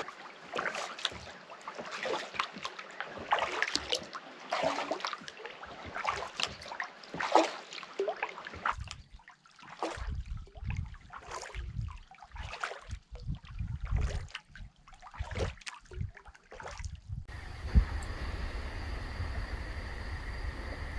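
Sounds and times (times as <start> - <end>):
paddle splashing in water: 0.0 - 10.1, 17.3 - 20.9
low rumble: 17.3 - 20.9
water dripping: 17.3 - 20.9.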